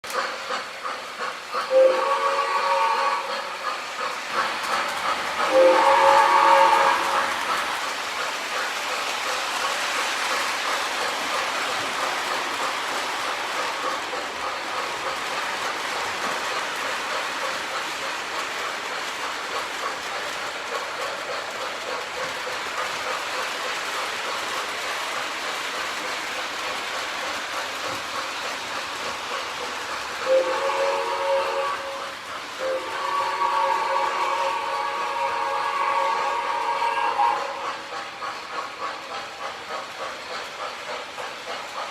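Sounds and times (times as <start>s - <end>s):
model steam train chuffing on track: 0.0s - 41.9s
multi-tone steam whistle: 1.6s - 3.7s, 5.4s - 7.6s, 30.2s - 38.0s.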